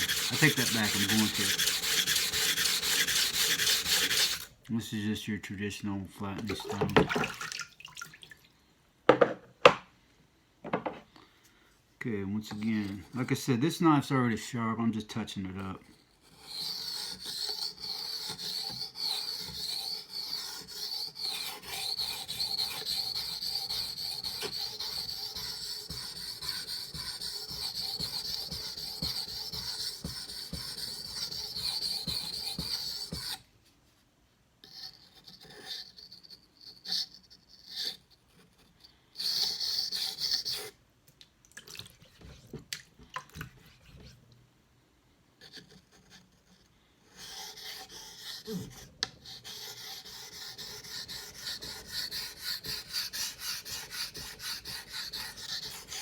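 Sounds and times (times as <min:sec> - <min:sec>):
knife scraping on whetstone: 0:00.0 - 0:04.5, 0:16.3 - 0:33.4, 0:34.7 - 0:40.7, 0:47.2 - 0:56.0.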